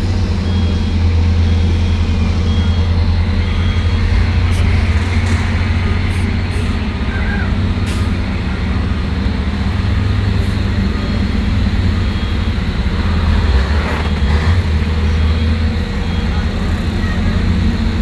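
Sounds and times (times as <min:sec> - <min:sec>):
diesel truck engines driving past: 0:00.0 - 0:18.0
short air brake hisses: 0:07.9 - 0:08.2.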